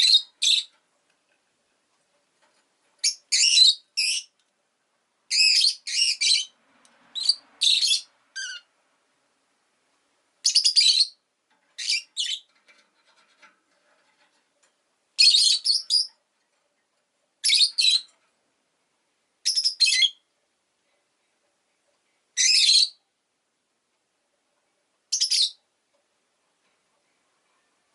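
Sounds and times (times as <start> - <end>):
lovebird shrill chirps: 3.0 - 4.3, 5.3 - 6.6, 7.2 - 8.7, 10.4 - 11.2, 11.8 - 12.5, 15.2 - 16.1, 17.4 - 18.1, 19.4 - 20.2, 22.4 - 23.0, 25.1 - 25.6.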